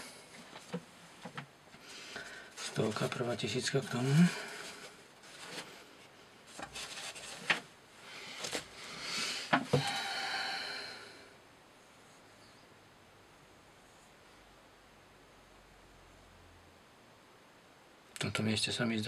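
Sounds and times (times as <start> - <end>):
rubbing and scraping handling: 0.0 - 10.0.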